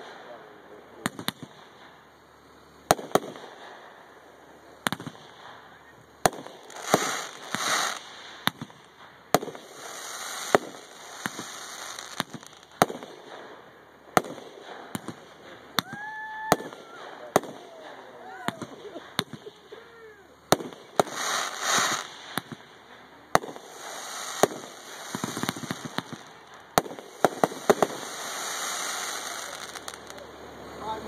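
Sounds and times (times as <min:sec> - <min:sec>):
hissing crackle: 0:01.3 - 0:30.9
firework shells bursting: 0:06.2 - 0:30.4.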